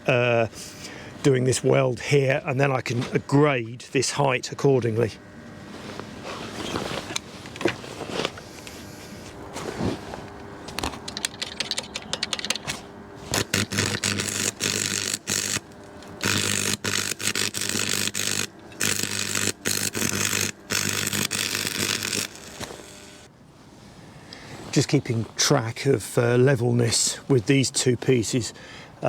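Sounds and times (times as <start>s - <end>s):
welding arc crackling and buzzing: 13.2s - 23.3s.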